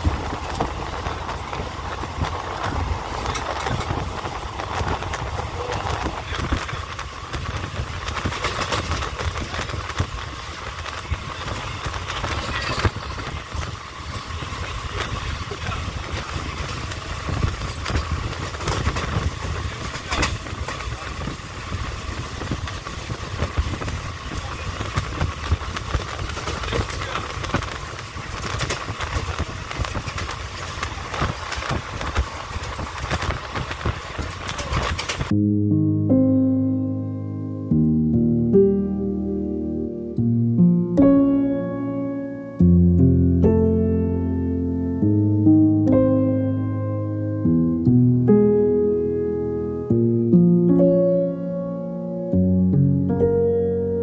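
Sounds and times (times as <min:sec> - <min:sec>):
train wheels clicking and knocking: 0:00.0 - 0:35.3
train wheels rumbling on track: 0:00.0 - 0:35.3.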